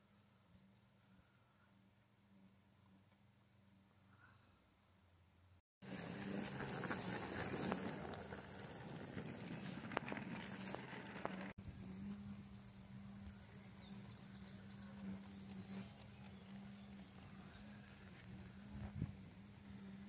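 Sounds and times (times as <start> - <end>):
outdoor background noise: 0.0 - 20.0
steady low hum: 0.0 - 20.0
small birds trilling: 11.6 - 20.0.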